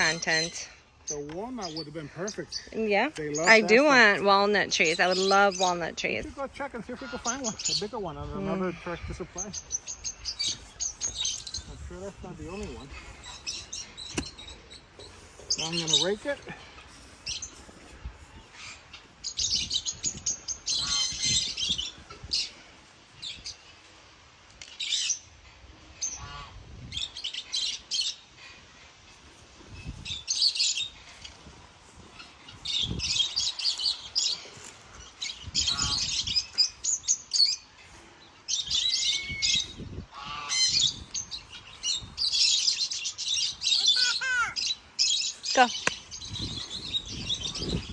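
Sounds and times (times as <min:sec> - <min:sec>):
birds chirping and squawking: 0:00.0 - 0:23.9, 0:24.7 - 0:47.9
rake scraping soil: 0:09.6 - 0:21.1, 0:28.4 - 0:42.7.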